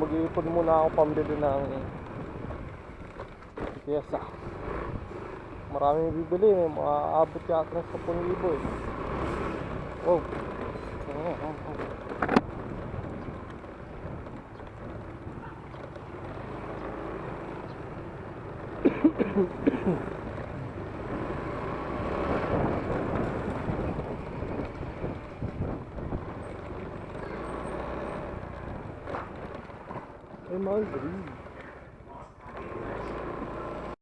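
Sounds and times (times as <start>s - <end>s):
traffic rumble: 0.0s - 34.0s
voices: 30.4s - 33.9s.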